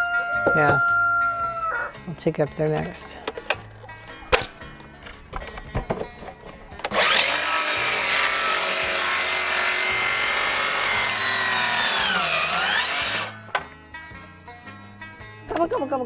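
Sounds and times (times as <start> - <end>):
power saw cutting wood: 6.2 - 13.6.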